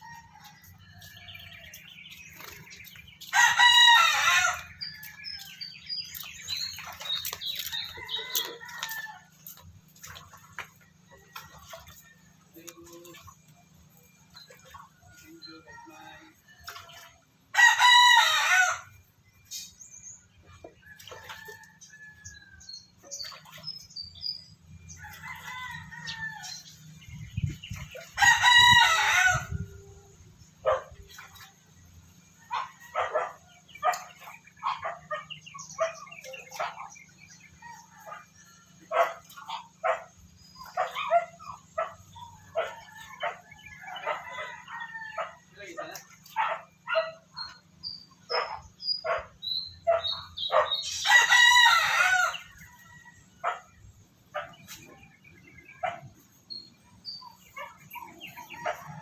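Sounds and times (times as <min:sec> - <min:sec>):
rooster crowing: 0:03.3 - 0:05.5, 0:17.5 - 0:18.9, 0:28.2 - 0:29.7, 0:50.8 - 0:53.6.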